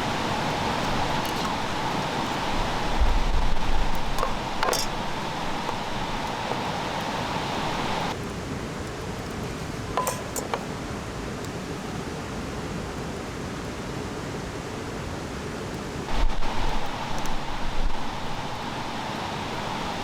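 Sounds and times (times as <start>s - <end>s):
steady hiss: 0.0s - 8.2s, 16.1s - 20.0s
light clinks: 10.0s - 10.7s.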